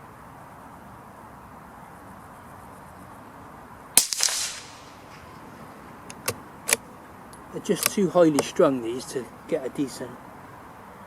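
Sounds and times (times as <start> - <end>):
rifle shot crack: 4.0 - 6.8
light clicks: 6.1 - 8.6.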